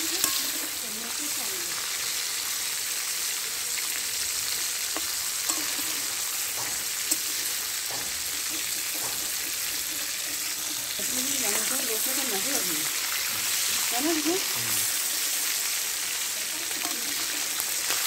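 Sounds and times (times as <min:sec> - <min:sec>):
chicken sizzling in hot oil: 0:00.0 - 0:18.0
metal spatula tapping pan: 0:00.1 - 0:00.6, 0:04.9 - 0:10.4.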